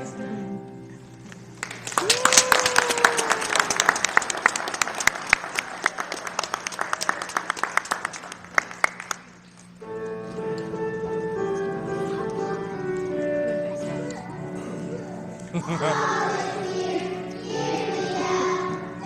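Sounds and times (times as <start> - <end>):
audience applause: 1.6 - 9.4
piano music: 9.8 - 19.0.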